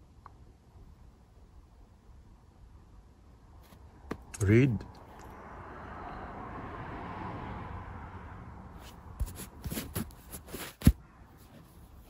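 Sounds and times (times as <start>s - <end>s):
soft rustling handling noise: 3.6s - 4.4s, 8.8s - 12.0s.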